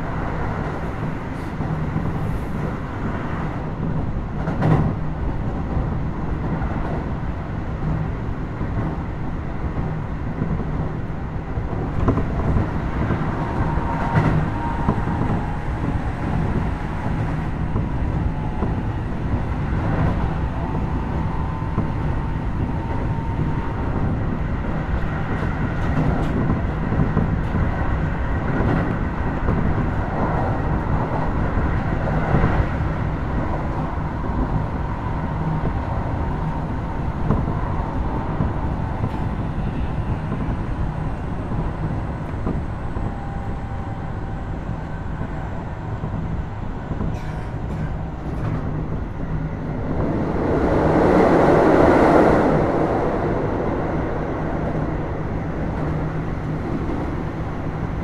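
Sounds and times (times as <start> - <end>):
train wheels rumbling on rails: 0.0 - 58.0
loud rushing noise: 49.4 - 57.4.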